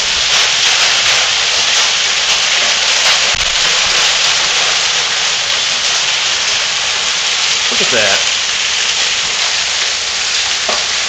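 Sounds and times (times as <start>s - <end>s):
hail and heavy rain pelting: 0.0s - 11.0s.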